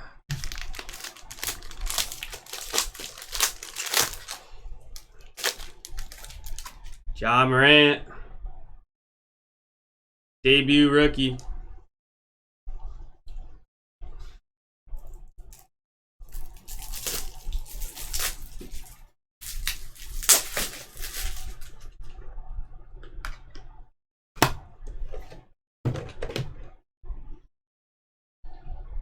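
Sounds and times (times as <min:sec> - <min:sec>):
plastic crinkling and rustling: 0:00.3 - 0:07.0, 0:16.3 - 0:21.9
sharp plastic crackle: 0:00.3 - 0:07.0, 0:16.3 - 0:21.8.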